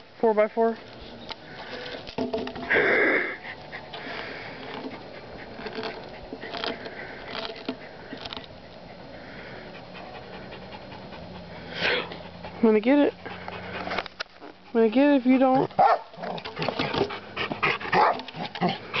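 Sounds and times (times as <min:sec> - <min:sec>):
dog gnawing on wood: 0:03.5 - 0:09.0, 0:13.3 - 0:18.8.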